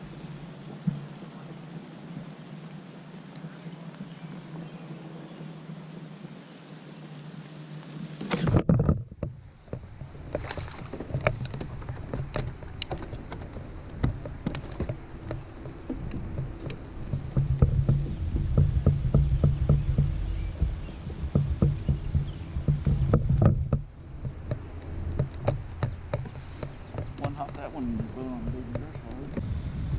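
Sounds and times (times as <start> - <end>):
low hum: 0.0 - 29.9
small knocks and clicks: 8.2 - 29.4
loud bump: 17.1 - 24.4.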